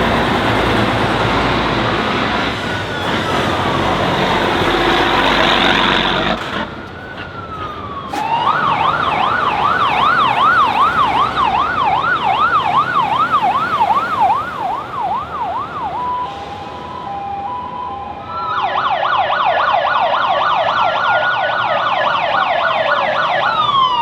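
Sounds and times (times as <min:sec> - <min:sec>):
loud vehicle engine: 0:00.0 - 0:17.7
siren wailing: 0:00.0 - 0:24.0.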